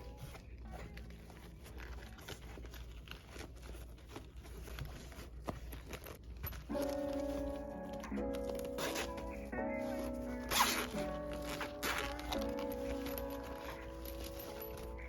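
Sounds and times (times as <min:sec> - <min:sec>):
packaging rustling and clicking: 0:00.0 - 0:15.0
background music: 0:06.5 - 0:15.0.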